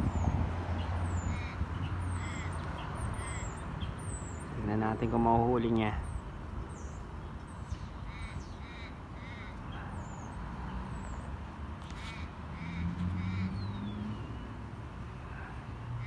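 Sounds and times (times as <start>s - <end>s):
small birds chirping: 0.0s - 15.8s
bird cawing harshly: 1.2s - 2.6s, 3.2s - 3.6s, 8.1s - 9.6s.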